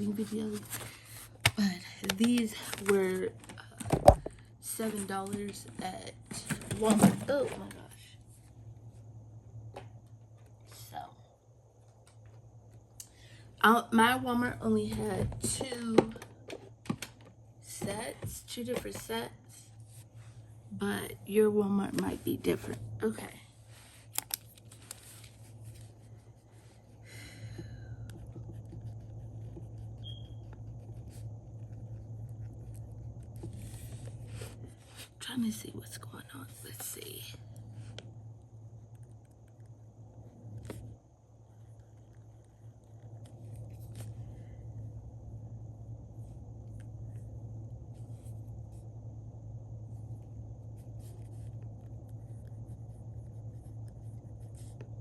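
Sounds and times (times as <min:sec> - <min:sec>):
paper rustling: 0:00.0 - 0:03.5, 0:24.0 - 0:26.3
low electrical hum: 0:00.0 - 0:55.0
pen scratching on paper: 0:28.1 - 0:34.5, 0:51.0 - 0:54.9.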